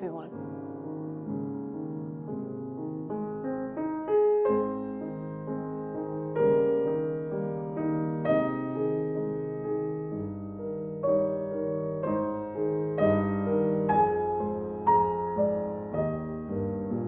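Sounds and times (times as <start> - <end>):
calm solo piano music: 0.3 - 17.0.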